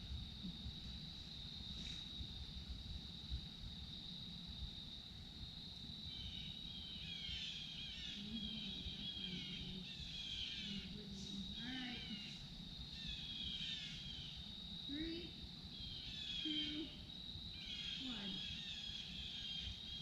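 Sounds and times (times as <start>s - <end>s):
high-pitched insect drone: 5.5s - 20.0s
birds chirping: 6.1s - 17.0s.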